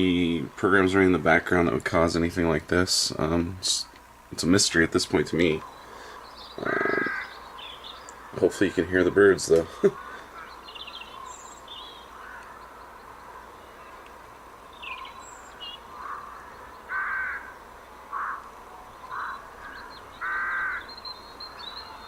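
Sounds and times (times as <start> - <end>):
high bird chirps: 5.6 - 8.3, 10.3 - 17.5, 19.0 - 22.0
crow-like caws: 5.8 - 8.8, 9.5 - 13.6, 15.0 - 21.0.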